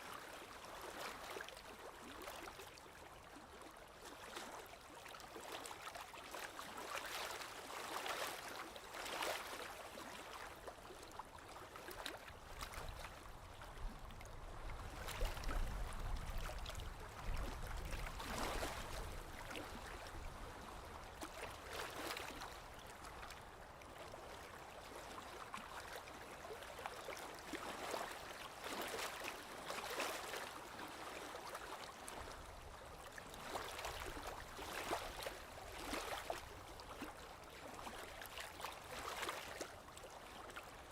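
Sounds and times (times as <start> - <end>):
small waves lapping on shore: 0.0 - 40.9.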